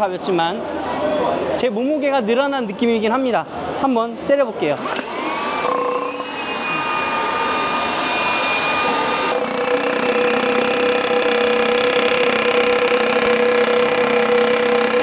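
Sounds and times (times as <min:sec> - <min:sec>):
rotary hammer drill running: 0:04.8 - 0:15.0.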